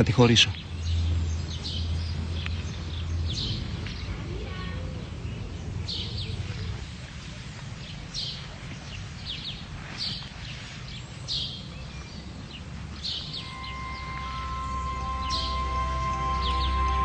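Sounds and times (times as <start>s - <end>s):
birds chirping: 0.0s - 17.0s
low outdoor rumble: 0.0s - 17.0s
held music tone: 13.0s - 17.0s.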